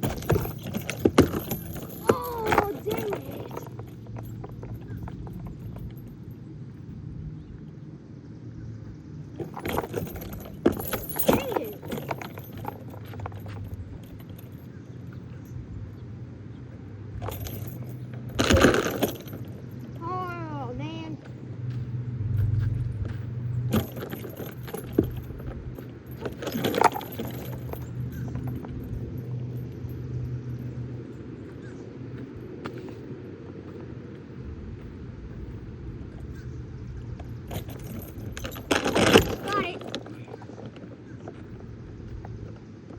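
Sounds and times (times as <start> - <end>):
metal swing chains jangling: 0.0 - 6.9, 9.3 - 42.6.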